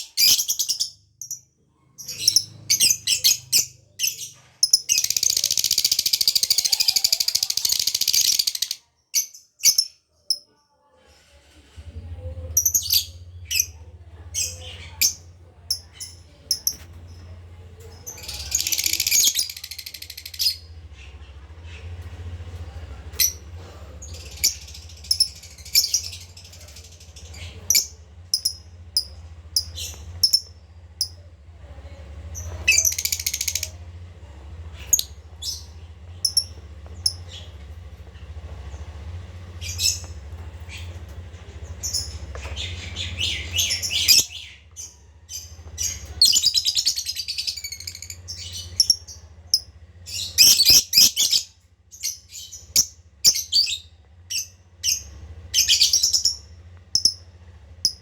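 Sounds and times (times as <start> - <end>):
squeaky chattering trills: 0.0 - 10.5, 11.5 - 58.0
lovebird chirping: 24.1 - 31.2, 34.9 - 37.5.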